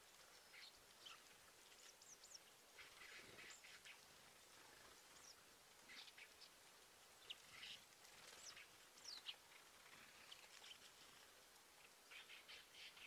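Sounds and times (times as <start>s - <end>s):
steady outdoor hiss: 0.0s - 13.0s
faint bird chirps: 11.8s - 13.0s.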